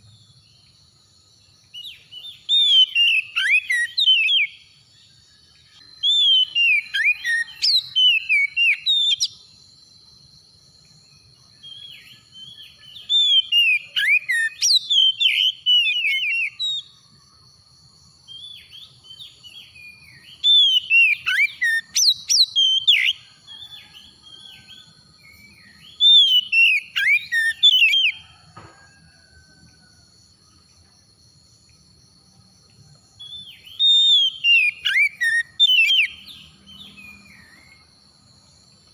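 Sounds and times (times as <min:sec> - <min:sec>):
bird singing whistled phrases: 0:01.8 - 0:04.7, 0:06.0 - 0:09.4, 0:11.7 - 0:16.9, 0:18.4 - 0:23.2, 0:24.5 - 0:28.2, 0:33.2 - 0:37.9.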